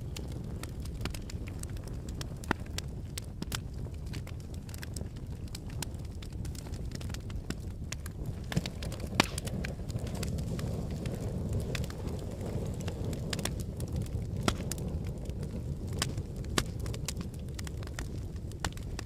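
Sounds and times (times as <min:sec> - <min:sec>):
lava crackling and snapping: 0:00.0 - 0:19.0.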